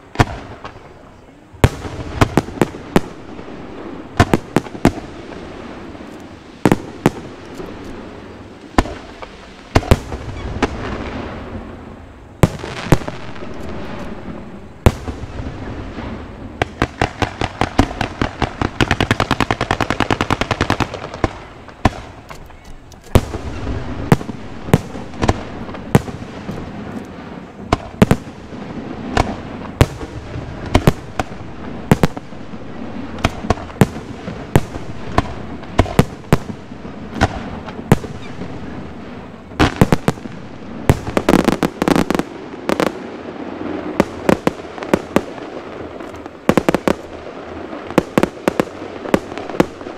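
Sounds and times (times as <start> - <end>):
fireworks bangs: 0.0 - 49.9.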